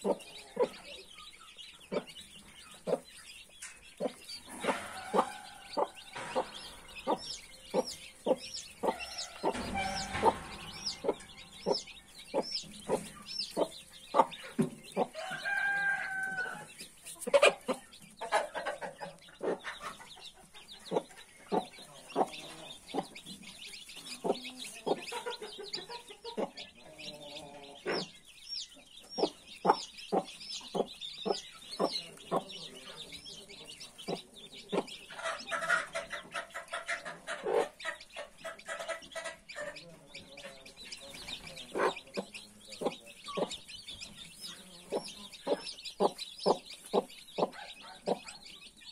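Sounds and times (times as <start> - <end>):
chicks peeping: 0.0 - 48.9
hen clucking: 0.0 - 48.9
drawn-out chicken call: 15.2 - 16.7.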